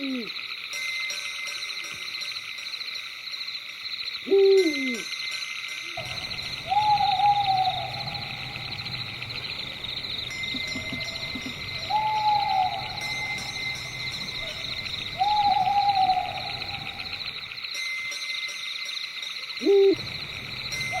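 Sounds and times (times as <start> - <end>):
night insects chorus: 0.0 - 21.0
owl hooting: 6.0 - 17.5, 19.6 - 21.0.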